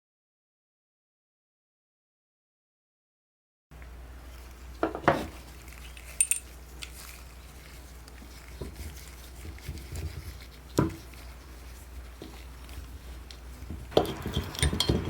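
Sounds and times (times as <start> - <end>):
metal parts clinking and knocking: 5.8 - 7.0.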